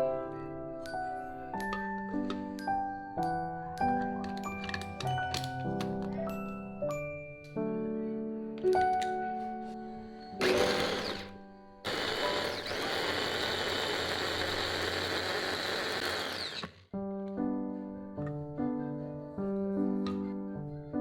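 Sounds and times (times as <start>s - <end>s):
soft piano music: 0.0s - 12.4s, 16.9s - 21.0s
small motor whirring: 10.4s - 11.3s, 11.9s - 16.9s.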